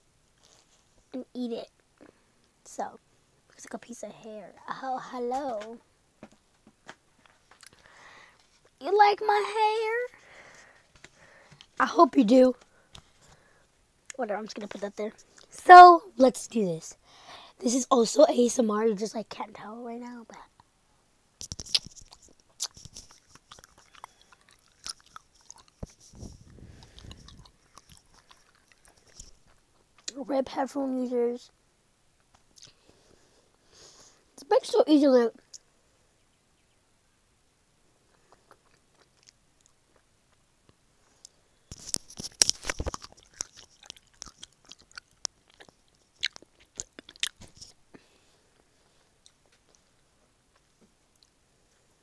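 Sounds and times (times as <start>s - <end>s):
wet mouth clicks and smacks: 21.4s - 26.0s, 41.2s - 47.6s
person chewing gummy candy: 21.4s - 30.1s, 32.6s - 32.8s, 38.1s - 40.1s, 41.2s - 47.7s.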